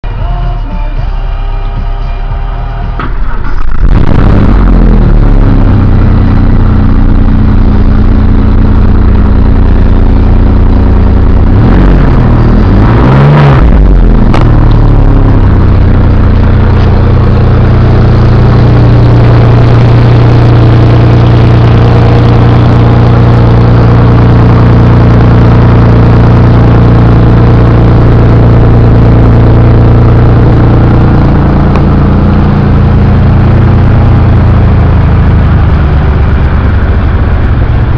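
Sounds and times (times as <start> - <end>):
car engine revving and idling: 0.0 - 37.9.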